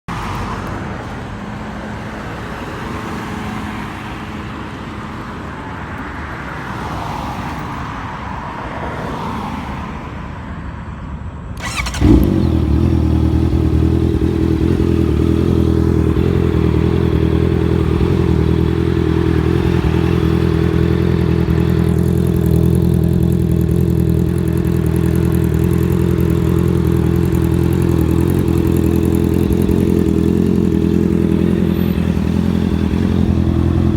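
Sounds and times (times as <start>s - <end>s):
motorcycle engine starting and running: 11.6s - 33.9s.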